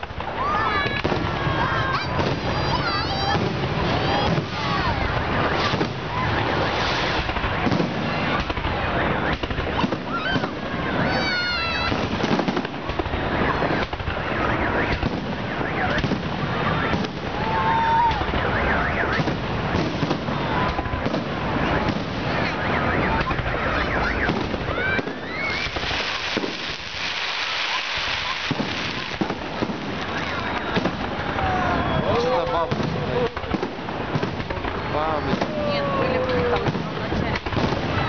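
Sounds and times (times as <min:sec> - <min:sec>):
fireworks bangs and crackles: 0:00.0 - 0:38.0
fireworks whistles gliding in pitch: 0:00.0 - 0:38.0.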